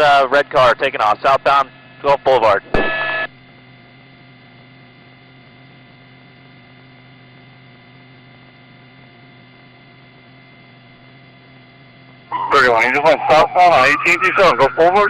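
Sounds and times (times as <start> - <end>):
electrical hum: 0.0 - 15.0
faint high tones: 12.3 - 15.0.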